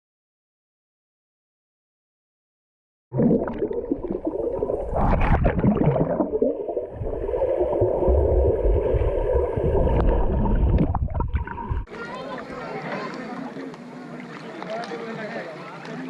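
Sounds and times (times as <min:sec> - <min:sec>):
underwater gurgling and bubbling: 0:03.1 - 0:11.9.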